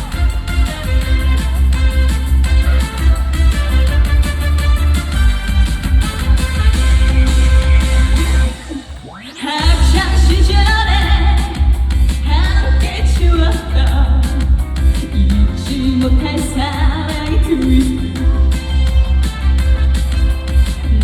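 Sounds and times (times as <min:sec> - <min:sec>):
live band playing: 0:00.0 - 0:21.0
woman singing: 0:08.2 - 0:19.4.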